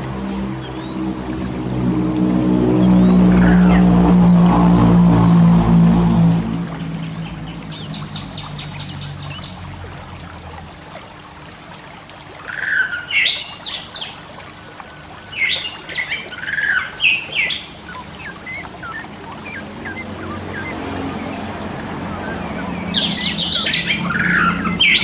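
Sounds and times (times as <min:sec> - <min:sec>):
songbird singing: 0:00.0 - 0:05.3, 0:06.3 - 0:09.7, 0:15.3 - 0:25.0.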